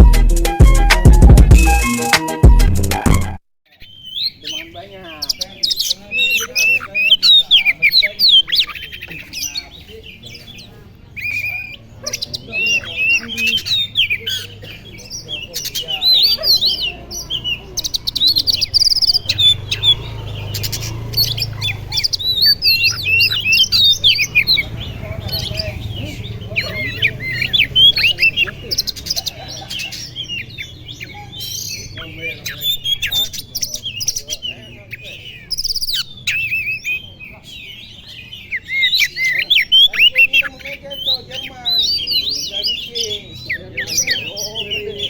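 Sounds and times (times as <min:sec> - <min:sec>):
songbird singing varied whistles: 0:11.2 - 0:29.2.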